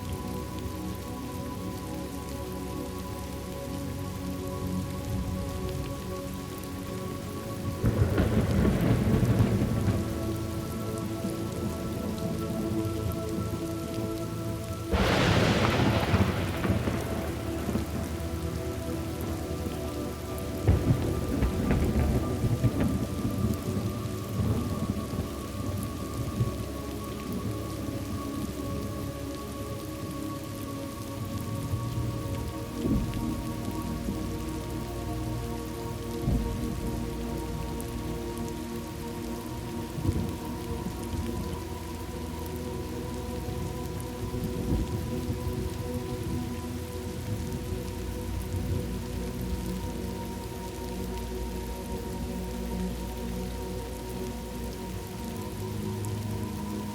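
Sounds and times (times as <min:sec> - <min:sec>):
faint steady drone: 0:00.0 - 0:56.9
steady rain falling: 0:00.0 - 0:56.9
thunder rumbling: 0:07.7 - 0:13.6, 0:14.9 - 0:29.2, 0:31.6 - 0:42.6, 0:43.2 - 0:50.8.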